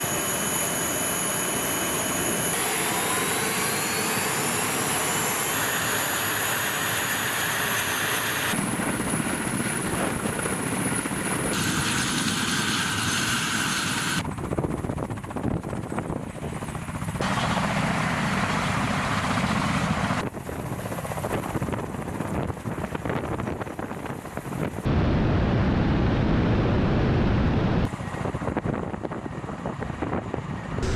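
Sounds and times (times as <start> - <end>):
rising whine: 0.0 - 8.6, 24.9 - 27.9
helicopter engines and rotors: 0.0 - 30.9.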